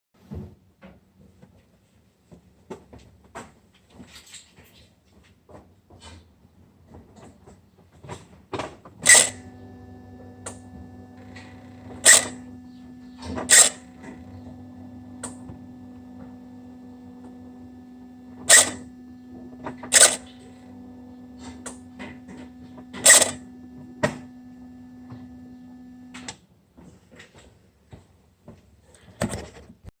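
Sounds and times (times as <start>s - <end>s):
actuator humming: 9.0s - 26.3s
loud sharp clicks: 18.4s - 18.9s.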